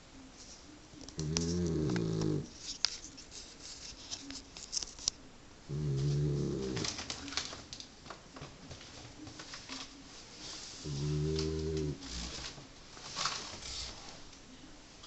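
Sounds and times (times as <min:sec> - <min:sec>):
dog snoring: 0:01.2 - 0:02.5, 0:05.7 - 0:07.0, 0:10.8 - 0:12.4.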